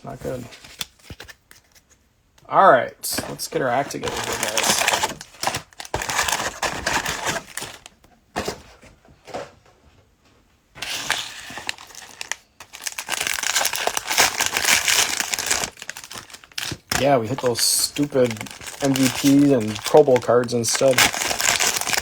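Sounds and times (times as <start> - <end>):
cellophane crinkling and tearing: 3.1 - 8.5, 10.8 - 22.0.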